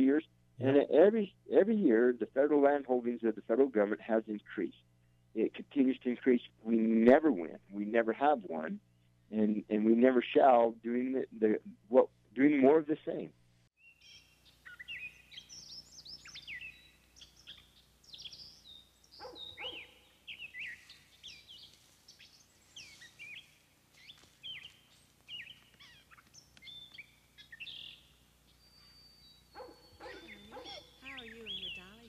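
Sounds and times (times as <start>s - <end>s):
songbirds chirping and singing: 13.8s - 32.0s.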